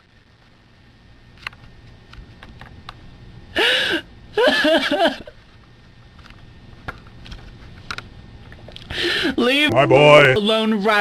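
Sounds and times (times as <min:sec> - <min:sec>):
breathy gasping: 0:08.8 - 0:09.4.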